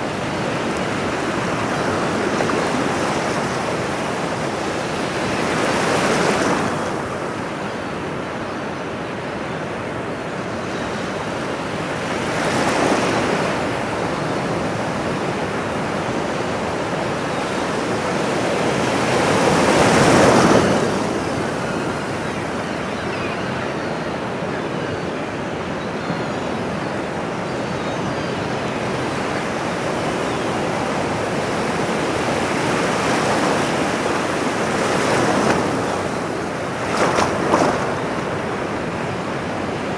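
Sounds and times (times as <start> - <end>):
ocean surf washing on shore: 0.0 - 7.6, 10.6 - 22.8, 28.6 - 39.9.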